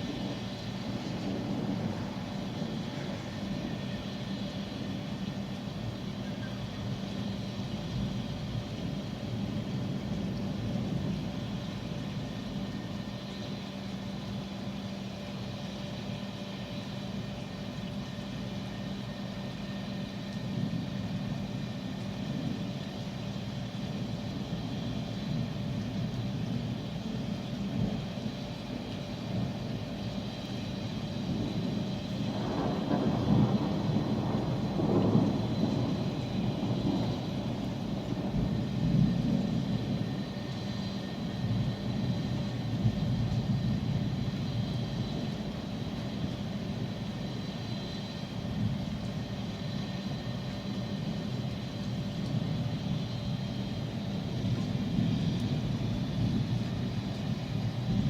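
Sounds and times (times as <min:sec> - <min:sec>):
thunder rolling: 0:31.3 - 0:40.3.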